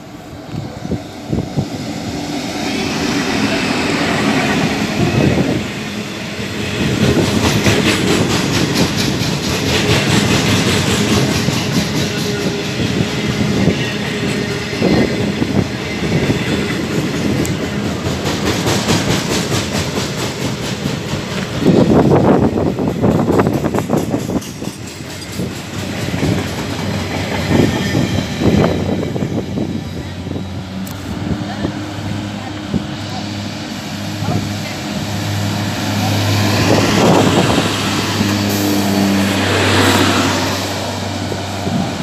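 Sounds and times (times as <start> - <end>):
diesel locomotive engine: 0.0 - 42.0
train wheels clickety-clack: 2.6 - 30.1.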